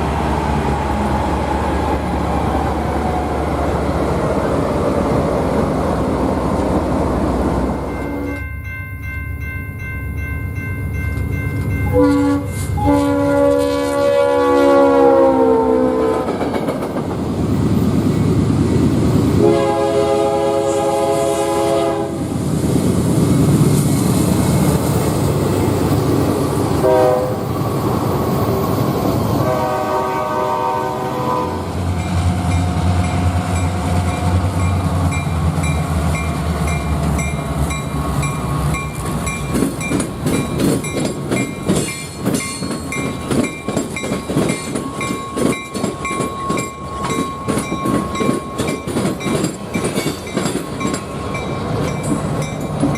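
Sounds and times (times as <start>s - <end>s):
locomotive rumbling past: 0.0s - 52.9s
train horn blasts: 11.8s - 16.3s, 19.4s - 22.3s, 26.8s - 27.5s, 29.4s - 31.8s
train wheels clacking over rail joints: 16.2s - 18.8s, 34.6s - 52.9s.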